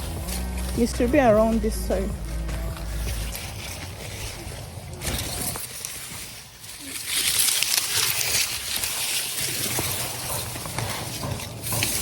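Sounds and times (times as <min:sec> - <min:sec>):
corn stalks rustling: 0:00.0 - 0:12.0.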